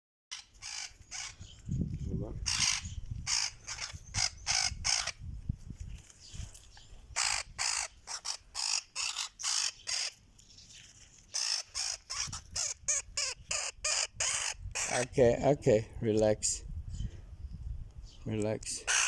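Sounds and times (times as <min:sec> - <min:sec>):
woodpecker harsh squawking calls: 0:00.3 - 0:01.7, 0:02.4 - 0:05.2, 0:07.1 - 0:10.2, 0:11.2 - 0:15.4.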